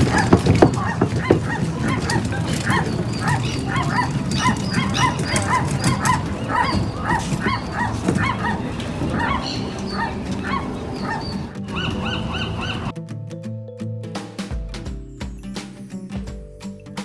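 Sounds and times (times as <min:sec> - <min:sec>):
chorus of animal calls: 0:00.0 - 0:12.9.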